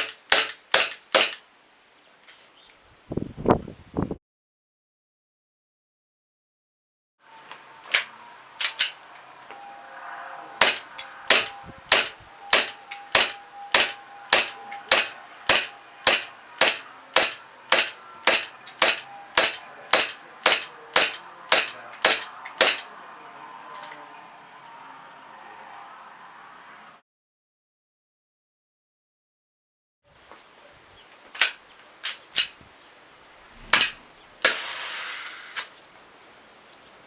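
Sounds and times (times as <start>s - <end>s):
airsoft pistol shots: 0.0s - 1.4s, 10.6s - 22.8s, 33.6s - 34.7s.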